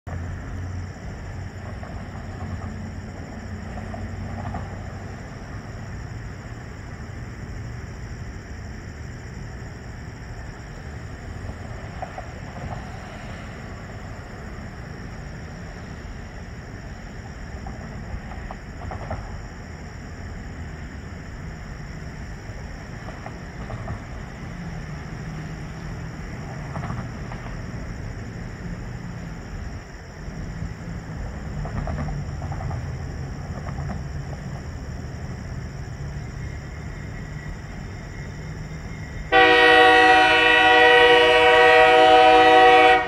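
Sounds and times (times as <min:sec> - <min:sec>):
distant train rumble: 0:00.0 - 0:43.0
faint ticks: 0:31.6 - 0:34.7.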